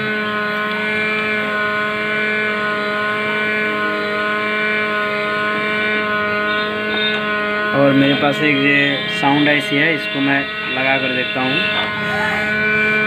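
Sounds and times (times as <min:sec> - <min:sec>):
hot-air gun blowing: 0:00.0 - 0:08.4, 0:11.8 - 0:13.0.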